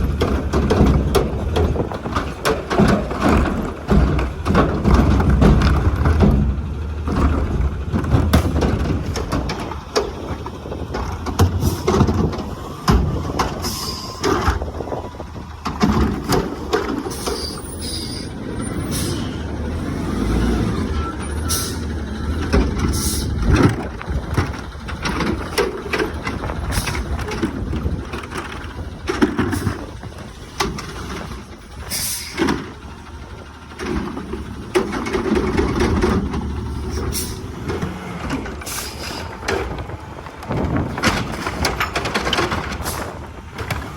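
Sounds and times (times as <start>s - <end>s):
sharp knocks and bangs: 0.0s - 10.1s
diesel engine running: 0.0s - 43.9s.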